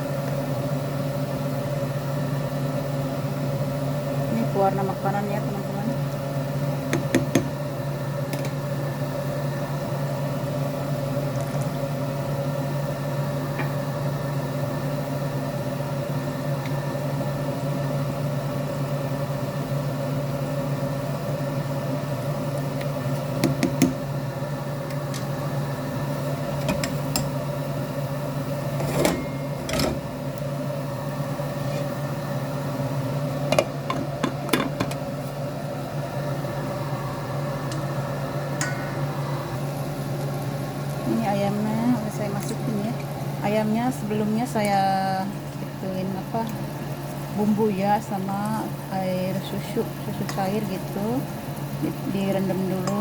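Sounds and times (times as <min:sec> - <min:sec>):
machine humming: 0:03.3 - 0:53.0.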